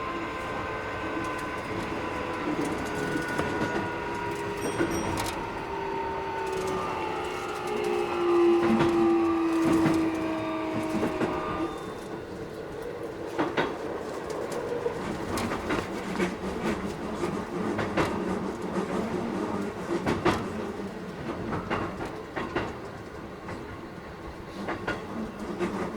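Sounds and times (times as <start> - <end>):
train motors whining: 0.0 - 19.8
train wheels running noise: 0.0 - 25.9.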